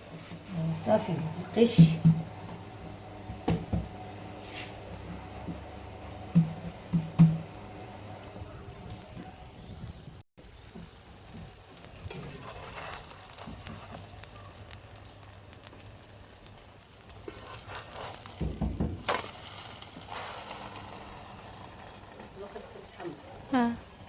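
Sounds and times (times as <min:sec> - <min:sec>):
flatbread sizzling and crackling: 0:00.0 - 0:24.0.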